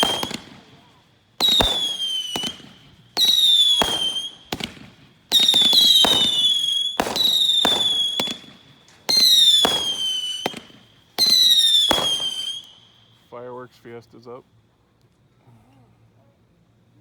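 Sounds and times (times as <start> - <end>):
firework cracks: 0.0 - 13.1
firework whistles: 0.0 - 13.5.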